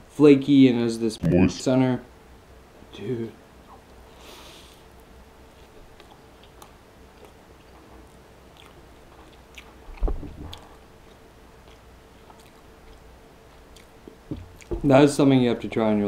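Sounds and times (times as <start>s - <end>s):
person chewing pastry: 5.4s - 14.8s.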